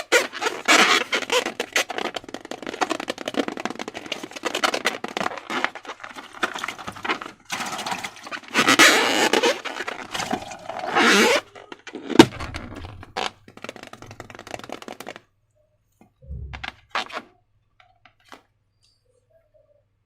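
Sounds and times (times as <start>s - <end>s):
crackles: 0.0s - 7.5s, 8.2s - 15.3s
balloon sharp crack: 8.5s - 15.2s
soft thump: 16.2s - 16.8s.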